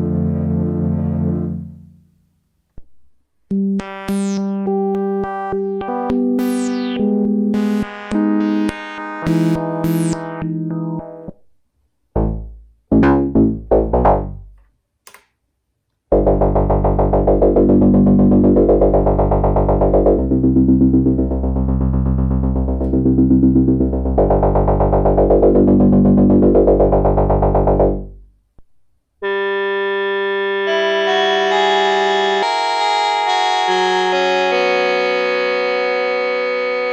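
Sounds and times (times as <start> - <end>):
synthesizer plucked notes: 3.6 - 11.4, 16.1 - 28.1, 29.2 - 36.9
synthesizer sustained chord: 29.2 - 36.9.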